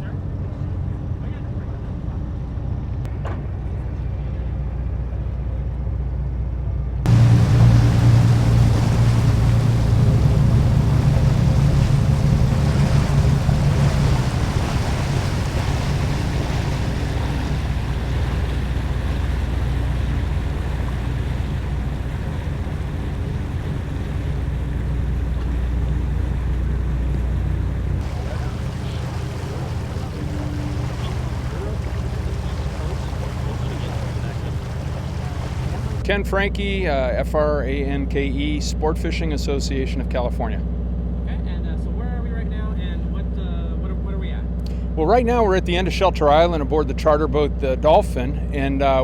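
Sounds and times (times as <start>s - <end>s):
boat engine humming: 0.0s - 49.0s
wind and water hiss: 7.1s - 36.0s.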